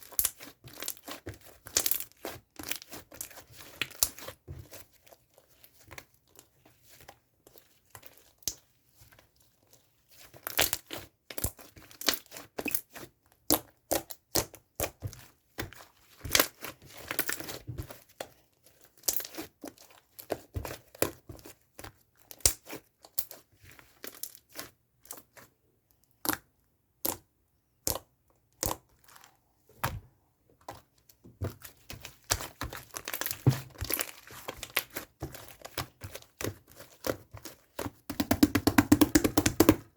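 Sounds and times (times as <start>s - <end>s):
hands crinkling material: 30.6s - 39.9s.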